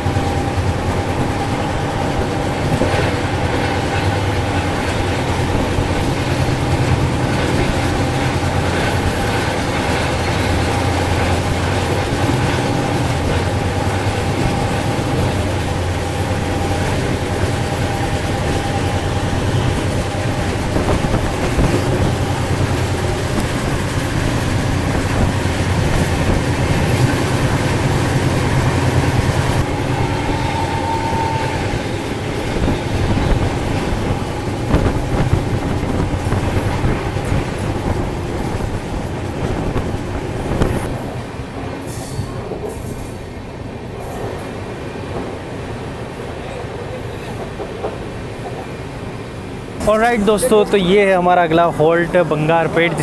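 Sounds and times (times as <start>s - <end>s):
faint clickety-clack from rails: 0.0s - 53.0s
train wheels rumbling and rattling: 0.0s - 53.0s.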